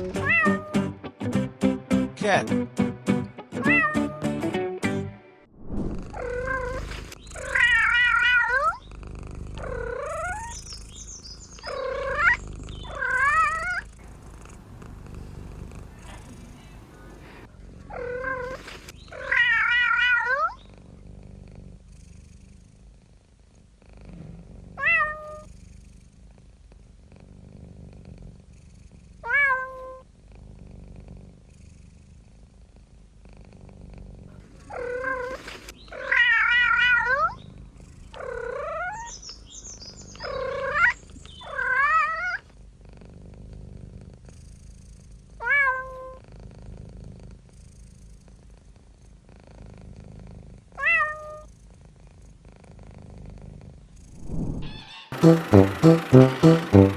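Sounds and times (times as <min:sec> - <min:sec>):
cat meowing: 0:00.2 - 0:00.8, 0:03.6 - 0:04.2
low steady rumble: 0:14.0 - 0:17.5.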